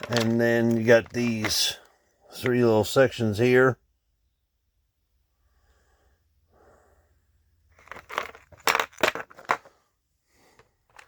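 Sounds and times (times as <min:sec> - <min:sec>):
plastic model handling noise: 0:00.0 - 0:02.6.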